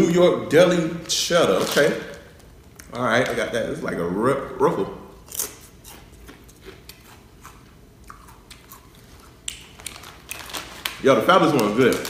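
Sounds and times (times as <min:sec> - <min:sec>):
person chewing crunchy chips: 0:05.2 - 0:11.0.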